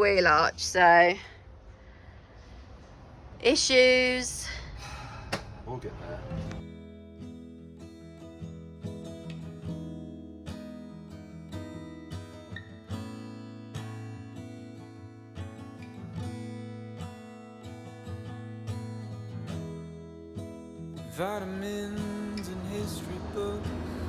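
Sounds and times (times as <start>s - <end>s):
strummed acoustic guitar: 6.3s - 24.0s.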